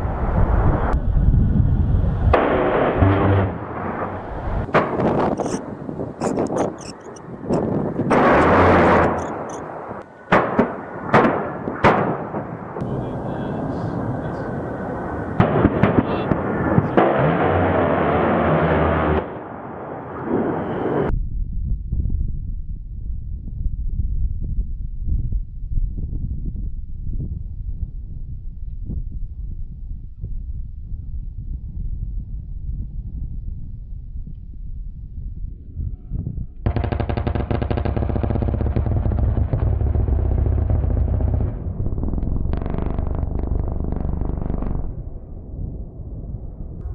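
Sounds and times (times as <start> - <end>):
cannon firing burst: 2.3 - 5.3, 8.1 - 12.9, 15.3 - 20.5, 36.7 - 45.4
sharp blasts and cracks: 2.3 - 12.9, 15.4 - 19.7, 36.6 - 45.3.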